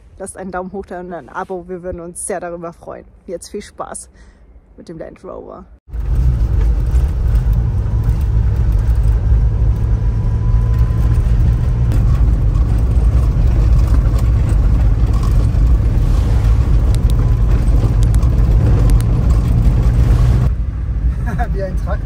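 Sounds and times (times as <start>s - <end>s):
vehicle engine rumbling: 5.8s - 22.0s.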